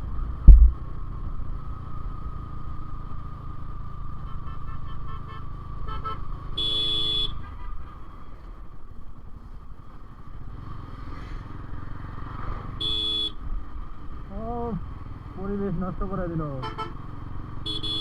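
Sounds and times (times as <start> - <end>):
motorcycle engine and road rumble: 0.0 - 18.0
vehicle horn beeping: 4.2 - 8.4, 12.8 - 13.4, 16.5 - 18.0.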